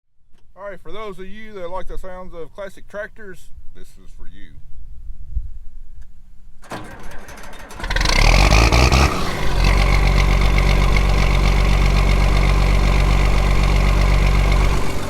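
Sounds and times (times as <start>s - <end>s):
tractor engine starting and idling: 6.6s - 15.0s.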